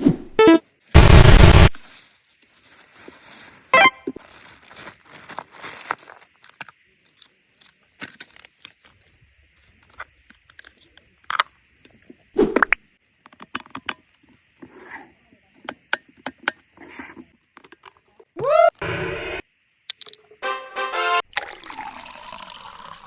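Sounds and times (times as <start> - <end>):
packaging rustling and tearing: 1.8 - 8.8.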